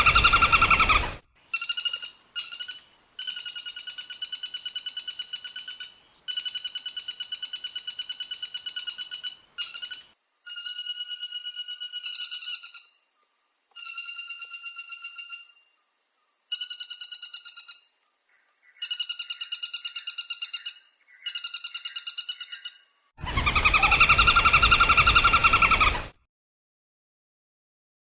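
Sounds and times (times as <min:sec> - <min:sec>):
woodpecker rattling trills: 0:00.0 - 0:12.9, 0:18.8 - 0:26.2
loud woodpecker call: 0:00.0 - 0:13.1, 0:16.5 - 0:26.2.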